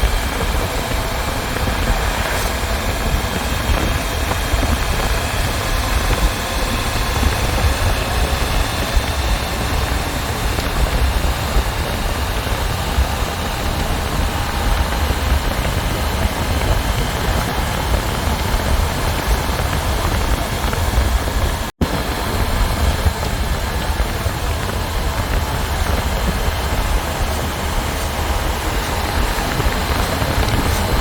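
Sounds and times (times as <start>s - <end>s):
motorcycle engine rumble: 0.0s - 31.0s
wind rushing over microphone: 0.0s - 31.0s.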